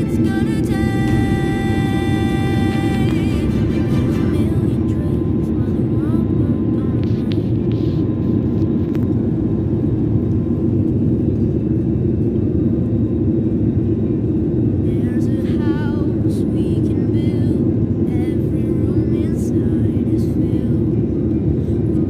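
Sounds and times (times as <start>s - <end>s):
airliner cabin hum: 0.0s - 22.0s.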